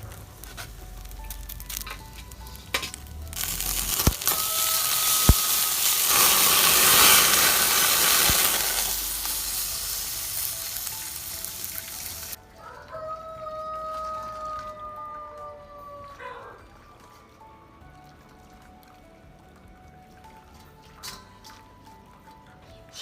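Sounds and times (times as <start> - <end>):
pork skin sizzling: 0.0 - 14.5.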